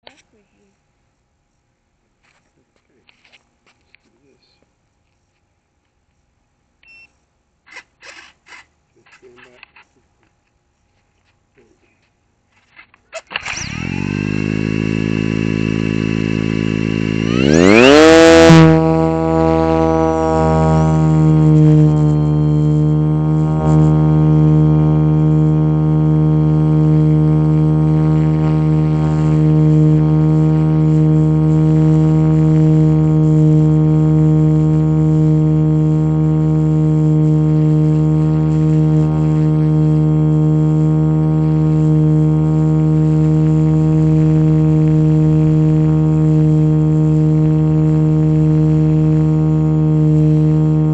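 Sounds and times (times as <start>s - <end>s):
model helicopter whine: 13.3s - 50.9s.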